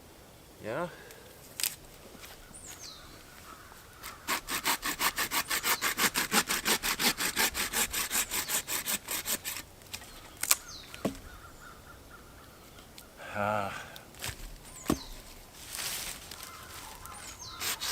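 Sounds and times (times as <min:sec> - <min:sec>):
hand saw cutting wood: 0:04.0 - 0:09.6, 0:17.3 - 0:17.9.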